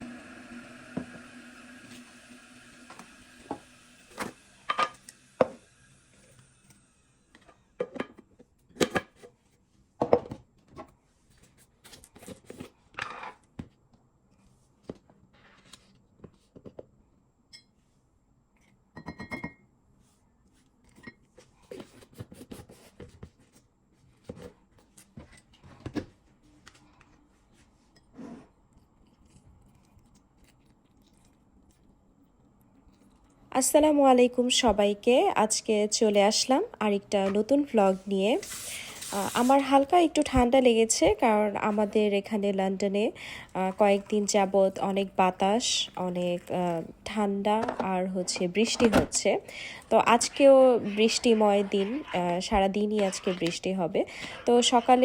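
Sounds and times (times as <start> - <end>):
dishes and utensils clinking: 19.0 - 19.6.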